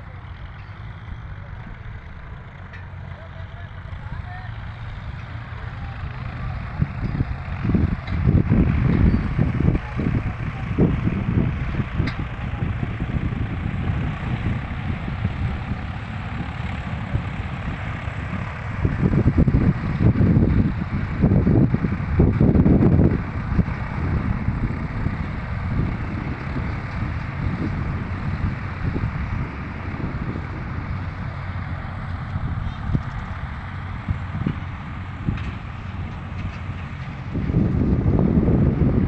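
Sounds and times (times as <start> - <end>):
tractor engine rumbling: 0.0 - 39.0.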